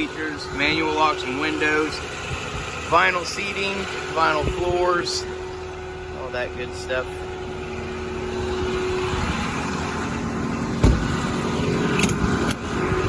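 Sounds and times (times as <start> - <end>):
diesel truck engine idling: 0.0 - 13.0
sharp thump: 10.8 - 11.2.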